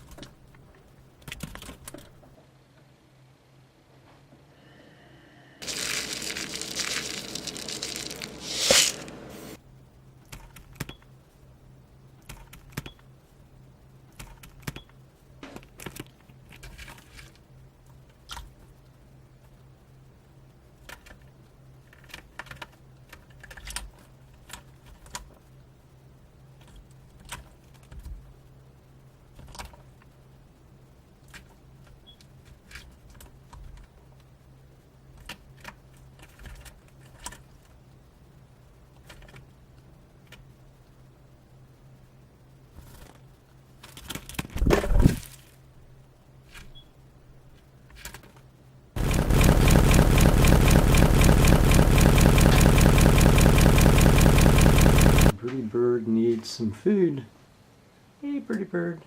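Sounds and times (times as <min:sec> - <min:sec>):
loud crinkling rustle: 0:05.6 - 0:09.1.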